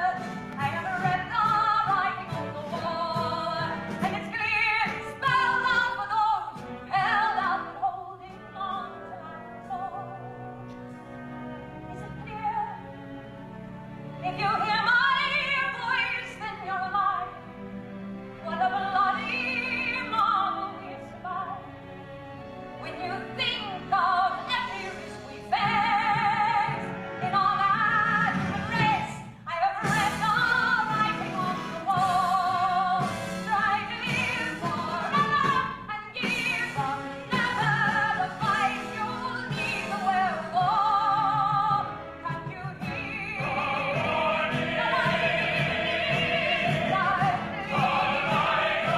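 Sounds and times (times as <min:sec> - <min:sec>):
woman singing with vibrato: 0:00.0 - 0:10.3, 0:22.9 - 0:48.9
orchestral accompaniment: 0:00.0 - 0:48.9.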